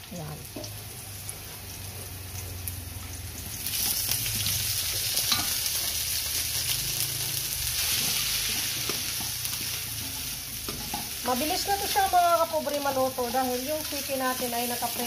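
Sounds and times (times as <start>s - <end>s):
oil sizzling in a wok: 0.0s - 15.0s
metal spatula scraping a pan: 3.8s - 15.0s.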